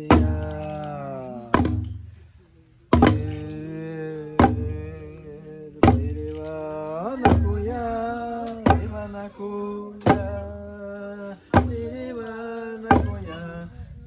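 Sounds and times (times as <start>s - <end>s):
person singing long notes: 0.0s - 1.9s
deep drum strokes: 2.9s - 5.0s.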